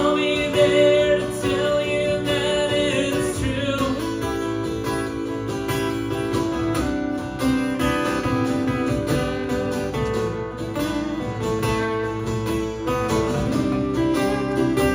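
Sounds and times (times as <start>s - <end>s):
person singing: 0.0s - 4.7s
acoustic guitar strumming: 0.0s - 14.9s.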